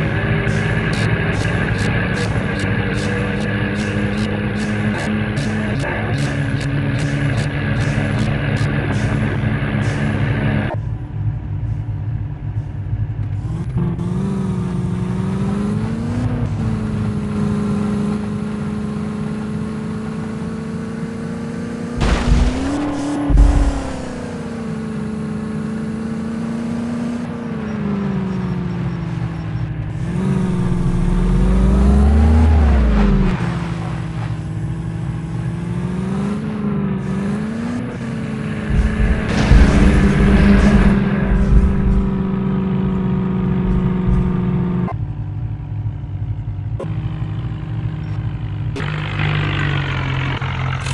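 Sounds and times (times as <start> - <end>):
tractor diesel engine revving: 0.0 - 50.9
sharp knocks: 38.6 - 44.9.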